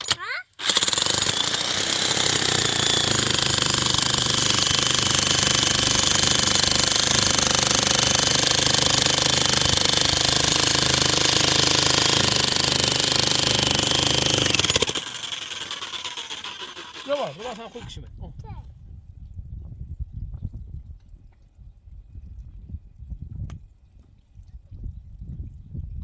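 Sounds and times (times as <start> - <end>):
power tool rattling: 0.0 - 18.0.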